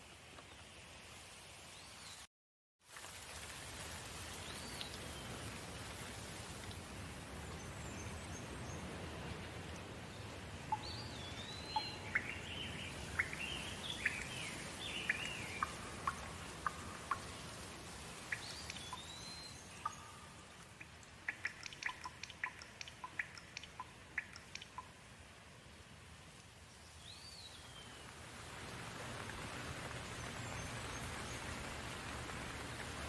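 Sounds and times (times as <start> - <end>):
steady rain: 0.0 - 33.0
single raindrops ticking: 10.6 - 25.1, 26.3 - 26.6.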